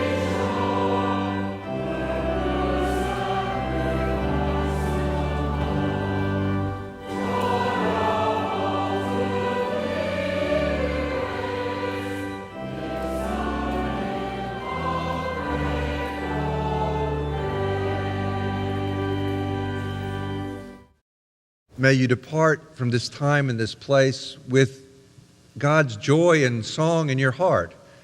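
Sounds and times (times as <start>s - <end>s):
choir singing a hymn: 0.0s - 20.8s
chordal accompaniment: 0.0s - 20.9s.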